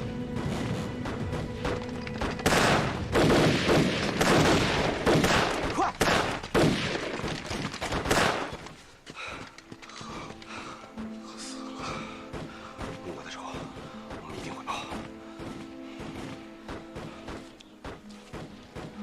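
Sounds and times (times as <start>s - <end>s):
dramatic background music: 0.0s - 5.5s, 9.5s - 19.0s
massed gunfire: 2.4s - 8.6s.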